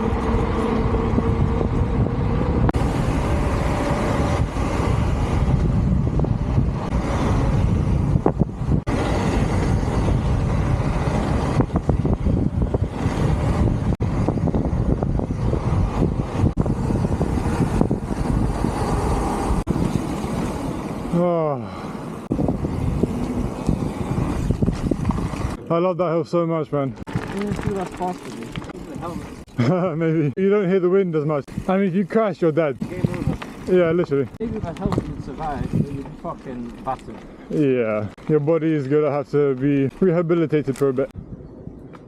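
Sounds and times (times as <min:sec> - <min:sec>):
wind buffeting microphone: 0:00.0 - 0:21.1, 0:22.0 - 0:25.6, 0:32.8 - 0:42.0.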